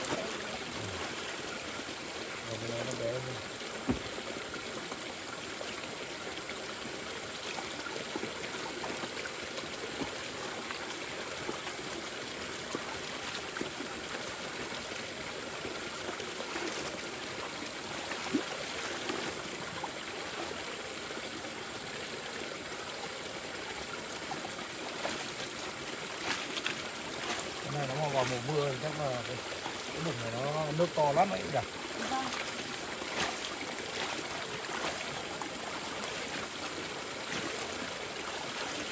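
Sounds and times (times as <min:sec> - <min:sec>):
stream flowing over rocks: 0:00.0 - 0:38.9.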